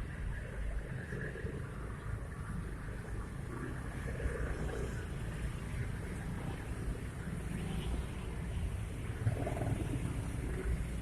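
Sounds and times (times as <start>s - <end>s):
road traffic rumble: 0.0s - 11.0s
wind buffeting microphone: 8.4s - 11.0s.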